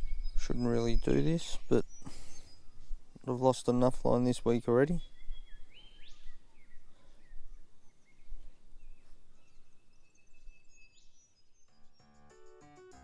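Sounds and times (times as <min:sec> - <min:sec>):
bird chirps: 0:00.0 - 0:03.0, 0:04.8 - 0:12.2
faint outdoor background noise: 0:00.0 - 0:12.0.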